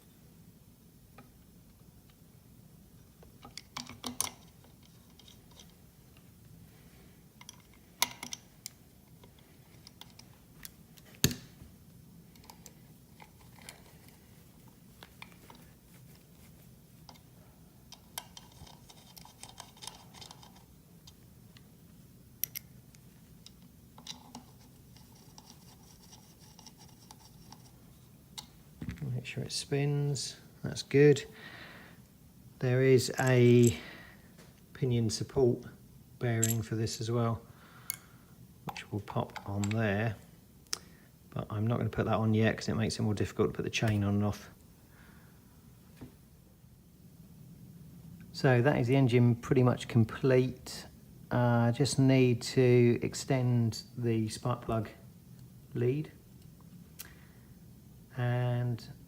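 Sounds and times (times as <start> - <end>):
faint low hum: 0.0 - 59.0
small metal parts clicking: 3.4 - 5.8, 17.9 - 21.2, 22.4 - 27.8, 36.4 - 36.7.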